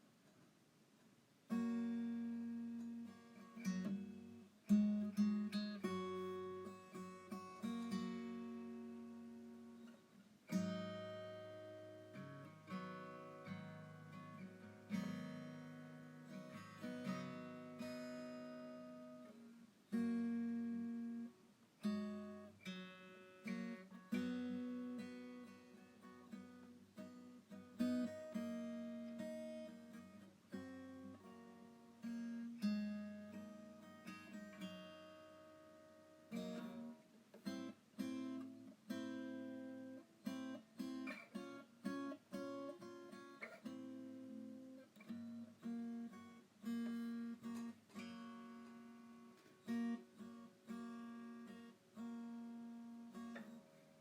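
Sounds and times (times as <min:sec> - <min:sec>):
strummed acoustic guitar chords: 0:01.5 - 0:54.0.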